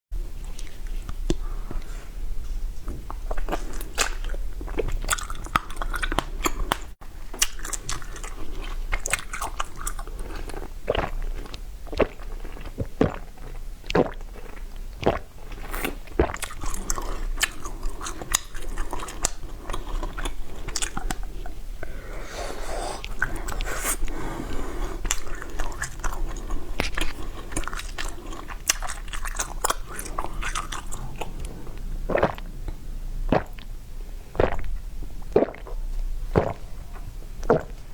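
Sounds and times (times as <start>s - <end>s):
ice being chewed: 3.0s - 21.6s, 23.0s - 32.5s.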